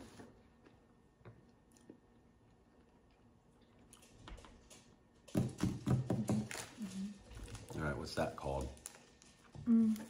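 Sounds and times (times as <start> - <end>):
faint snack chewing: 0.0 - 5.2.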